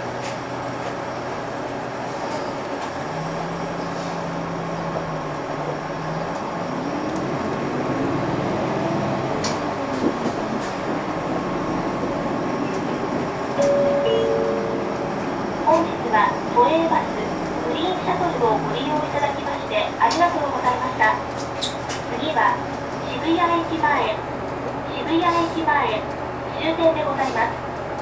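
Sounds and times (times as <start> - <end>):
bus engine and drivetrain hum: 0.0 - 28.0
short steady tone: 13.6 - 15.2.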